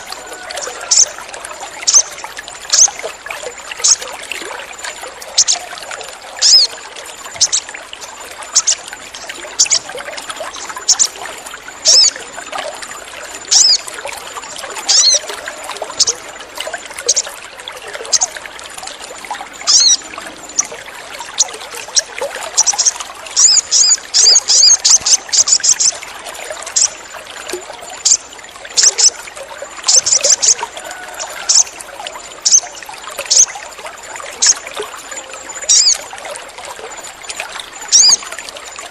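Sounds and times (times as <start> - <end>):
trickling water: 0.0 - 38.9
sunbird chirping: 6.4 - 7.7, 8.5 - 9.9, 10.5 - 11.2.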